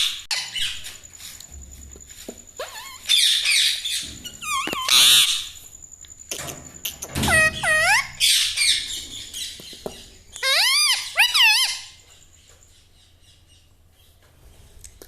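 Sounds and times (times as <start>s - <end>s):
parrot squawking: 2.6s - 5.5s, 6.9s - 8.9s, 10.4s - 12.0s.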